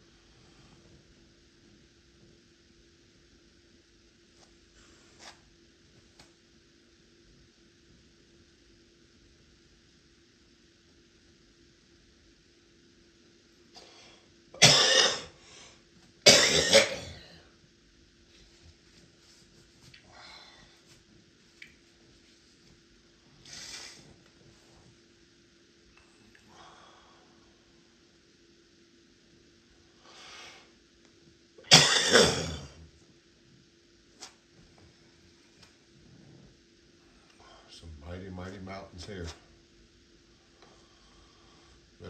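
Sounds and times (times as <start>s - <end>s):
person coughing: 14.6s - 15.3s, 16.3s - 17.4s, 31.6s - 32.8s.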